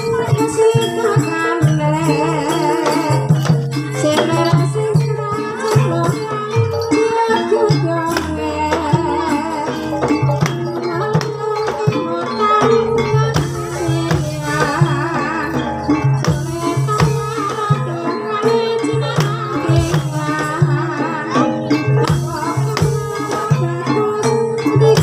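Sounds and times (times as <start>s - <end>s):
person singing: 0.0s - 25.0s
metallic pitched melody: 5.7s - 25.0s
drum strokes: 8.0s - 21.0s, 21.7s - 24.0s.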